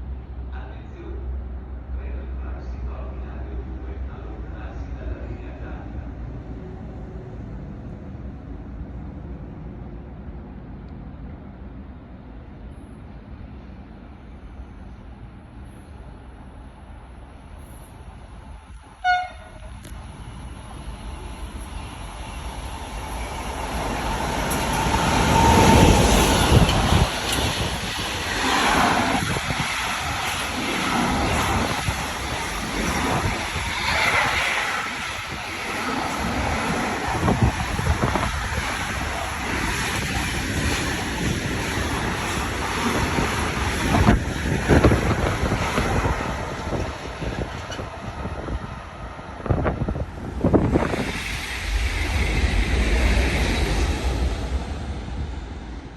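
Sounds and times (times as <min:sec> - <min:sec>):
train passing at speed: 0:00.0 - 0:55.9
wind buffeting microphone: 0:19.7 - 0:55.9.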